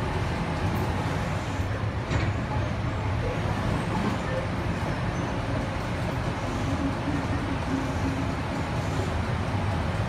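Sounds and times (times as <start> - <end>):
train wheels rumbling on track: 0.0 - 10.0.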